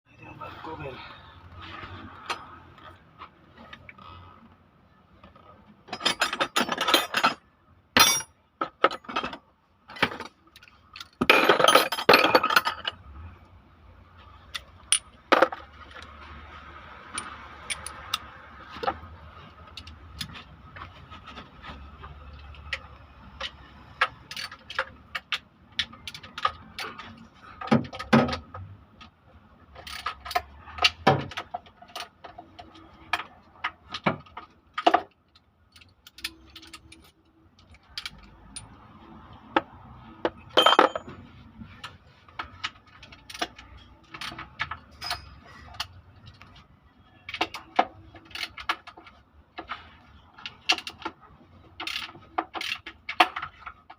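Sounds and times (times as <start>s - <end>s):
metal tools clinking: 5.9s - 7.4s, 8.0s - 9.4s, 10.1s - 13.0s, 17.1s - 18.2s, 35.7s - 38.8s, 40.5s - 41.3s, 43.0s - 46.0s.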